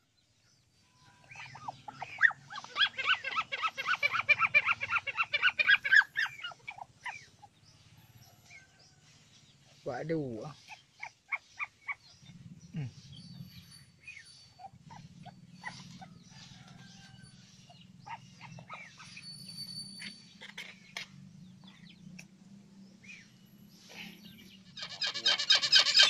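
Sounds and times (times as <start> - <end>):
bird chirps and calls: 0.8 - 22.3, 23.0 - 26.0
loud rapidly repeating bird call: 24.8 - 26.0.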